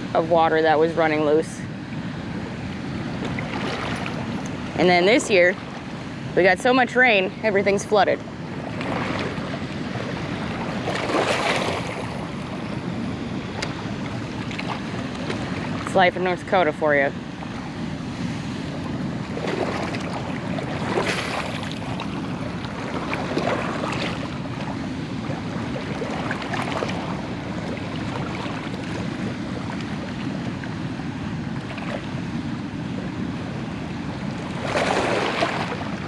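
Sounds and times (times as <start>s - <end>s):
rushing water: 0.0s - 12.7s, 13.6s - 36.0s.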